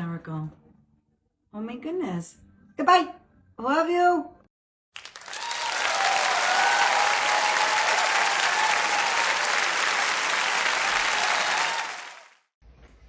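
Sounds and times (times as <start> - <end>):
crowd applauding: 5.0 - 12.5.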